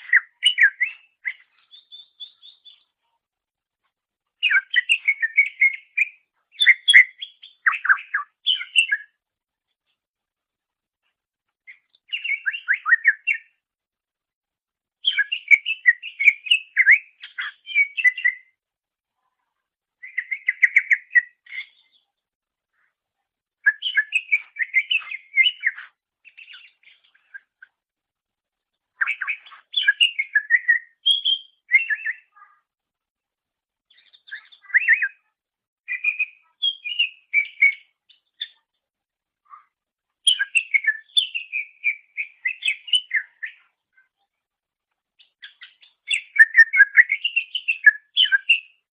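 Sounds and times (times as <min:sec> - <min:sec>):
bird chirping and whistling: 0:00.0 - 0:02.8, 0:04.4 - 0:09.1, 0:12.1 - 0:13.5, 0:15.1 - 0:18.5, 0:20.0 - 0:21.8, 0:23.6 - 0:26.8, 0:29.0 - 0:32.3, 0:34.0 - 0:35.2, 0:35.9 - 0:37.8, 0:40.3 - 0:43.6, 0:45.4 - 0:48.8.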